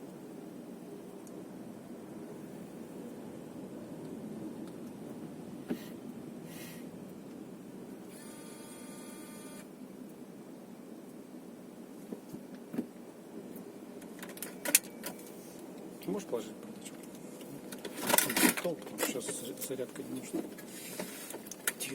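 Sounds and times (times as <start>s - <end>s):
buzzing electronic tone: 8.1s - 9.7s.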